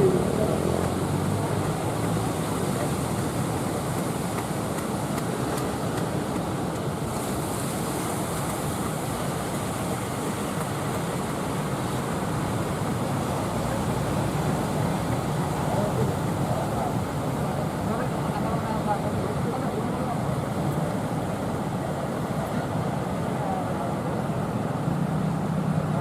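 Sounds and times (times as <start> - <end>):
sea waves breaking: 0.0 - 26.0.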